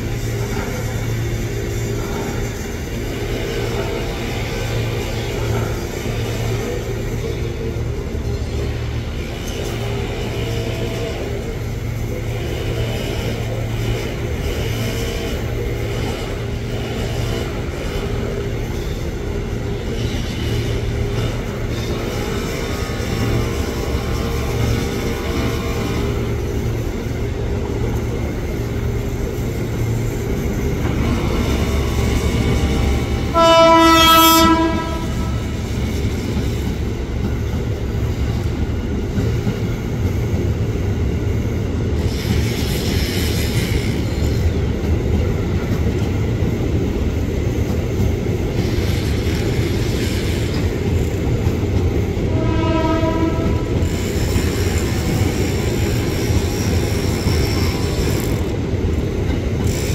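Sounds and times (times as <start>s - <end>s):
train wheels rumbling on rails: 0.0s - 59.9s
train horn: 31.4s - 35.7s, 52.3s - 54.0s.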